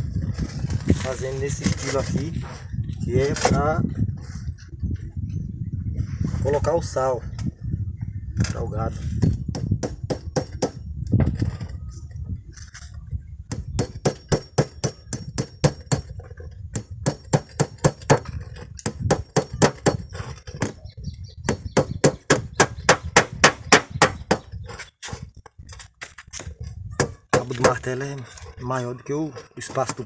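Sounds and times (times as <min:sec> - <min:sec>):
hammer striking steel nails: 0:09.2 - 0:10.8, 0:13.5 - 0:20.8, 0:21.5 - 0:24.8, 0:27.0 - 0:27.8.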